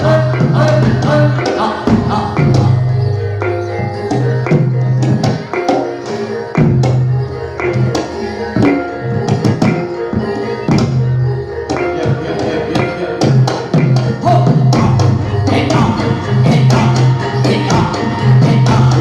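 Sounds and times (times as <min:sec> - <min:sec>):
deep held tones: 0:00.0 - 0:19.0
ringing gamelan metal tones: 0:00.0 - 0:19.0.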